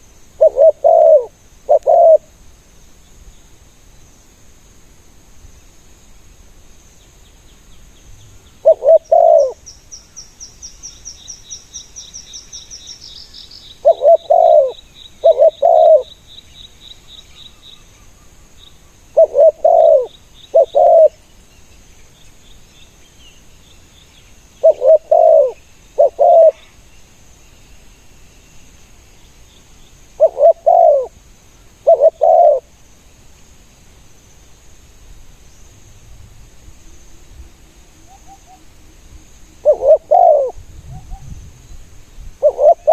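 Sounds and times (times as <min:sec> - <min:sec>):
dove cooing: 0:00.4 - 0:02.3, 0:08.6 - 0:09.6, 0:13.8 - 0:16.1, 0:19.2 - 0:21.2, 0:24.6 - 0:26.8, 0:30.2 - 0:31.2, 0:31.8 - 0:32.7, 0:39.6 - 0:41.3, 0:42.4 - 0:42.9.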